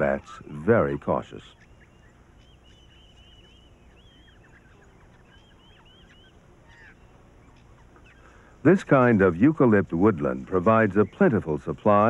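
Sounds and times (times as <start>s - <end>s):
low hiss: 0.0s - 12.0s
bird chirping high notes: 0.8s - 8.4s.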